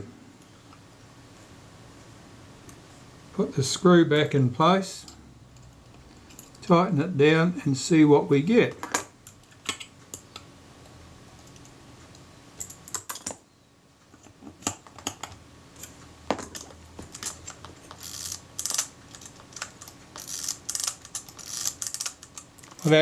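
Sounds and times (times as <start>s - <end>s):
small metallic clicks and scrapes: 14.1s - 23.0s.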